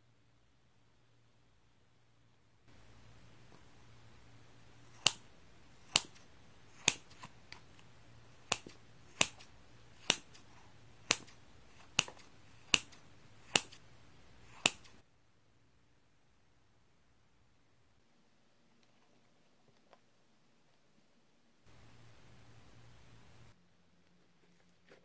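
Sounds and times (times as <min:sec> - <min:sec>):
scissors snipping sponge: 0:04.9 - 0:07.7, 0:08.4 - 0:13.8, 0:14.4 - 0:15.0.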